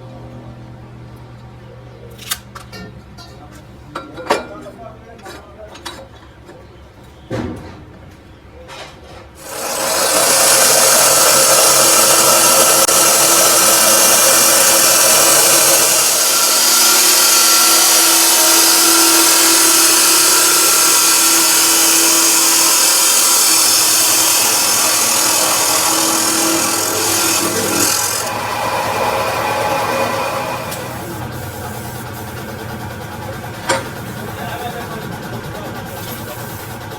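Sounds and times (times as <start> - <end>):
power tool grinding metal: 9.4 - 31.9.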